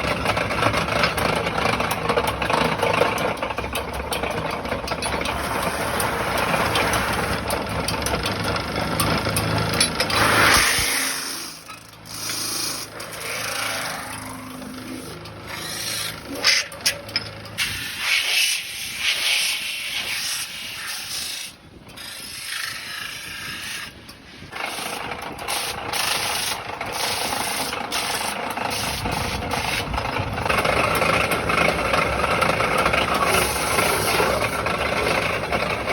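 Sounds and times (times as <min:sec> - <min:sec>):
low machine running: 0:00.0 - 0:18.1, 0:28.5 - 0:35.9
tool scraping spinning metal: 0:00.0 - 0:35.9.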